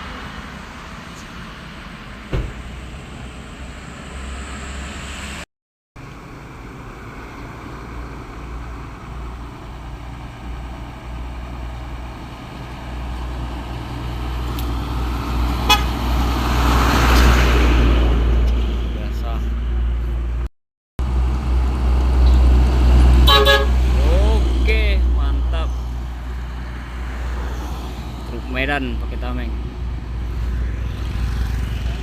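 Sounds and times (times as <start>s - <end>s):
heavy vehicle passing: 0.0s - 5.4s, 6.1s - 20.4s, 21.0s - 32.0s.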